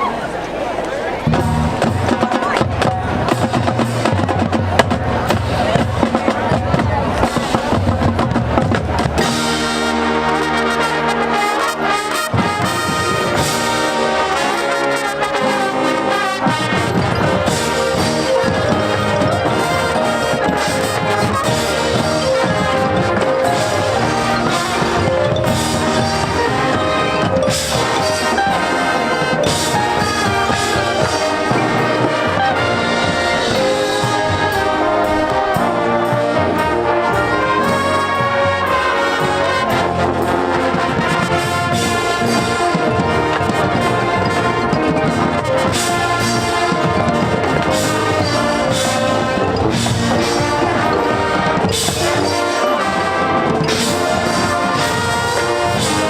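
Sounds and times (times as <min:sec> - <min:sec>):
marching band playing: 0:00.0 - 0:56.0
brass section playing tune: 0:01.2 - 0:56.0
percussion strikes: 0:01.2 - 0:56.0.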